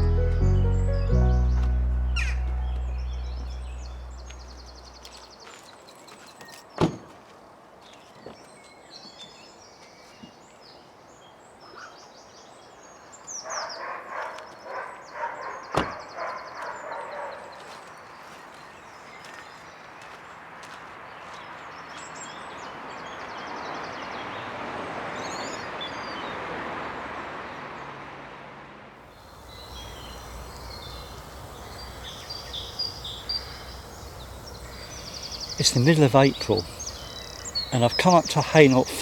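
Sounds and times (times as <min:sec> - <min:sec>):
piano sting: 0:00.0 - 0:05.0
birds calling and singing: 0:00.0 - 0:07.0, 0:29.1 - 0:39.0.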